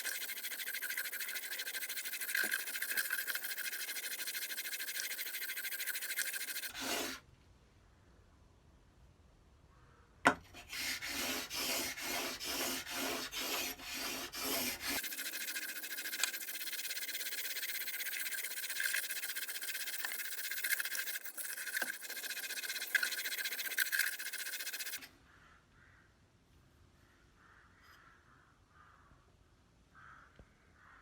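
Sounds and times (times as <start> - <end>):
plane blade scraping on sandpaper: 0.0 - 7.2, 10.5 - 25.1.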